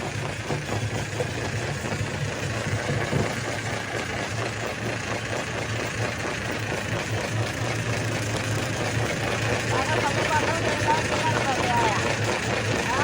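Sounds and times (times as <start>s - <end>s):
stone crusher machine running: 0.0s - 13.0s.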